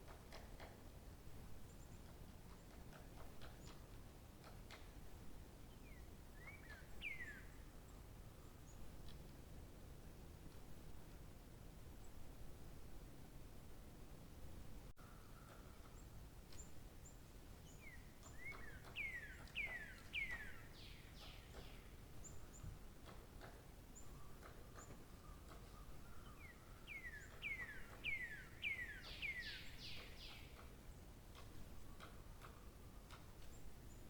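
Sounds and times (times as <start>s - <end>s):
soft background hiss: 0.0s - 34.0s
songbird singing: 1.6s - 9.4s, 14.9s - 34.0s.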